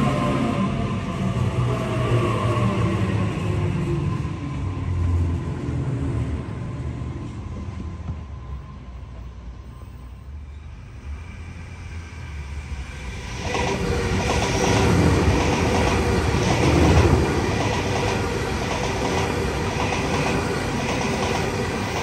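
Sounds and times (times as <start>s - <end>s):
train wheels rumbling on rail: 0.0s - 22.0s
clickety-clack over rail joints: 13.4s - 22.0s.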